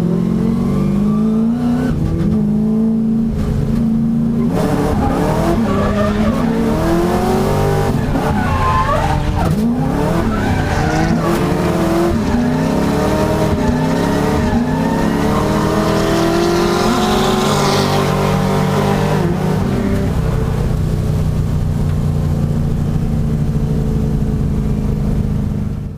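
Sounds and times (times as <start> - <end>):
car engines revving: 0.0 - 25.9
tyre squeal: 4.4 - 6.9, 7.8 - 15.8.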